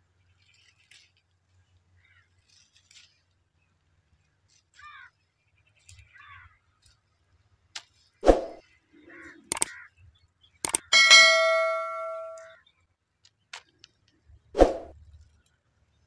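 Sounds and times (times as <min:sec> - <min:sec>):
small birds chirping: 0:04.8 - 0:07.0, 0:08.1 - 0:11.6
sharp click: 0:09.5 - 0:09.7, 0:10.6 - 0:12.5.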